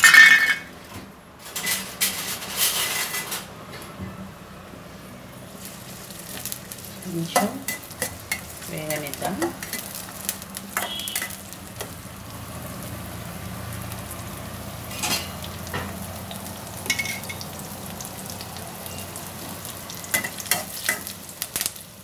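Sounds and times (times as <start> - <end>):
metal spatula scraping a pan: 1.5 - 3.5, 10.7 - 11.9, 14.9 - 15.5
vegetables sizzling in hot oil: 5.0 - 22.0.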